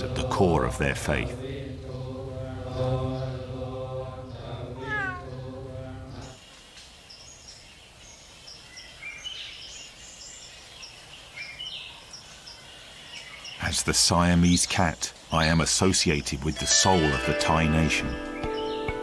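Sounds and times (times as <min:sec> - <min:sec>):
low chanted drone: 0:00.0 - 0:06.3
cat meowing: 0:04.8 - 0:05.3.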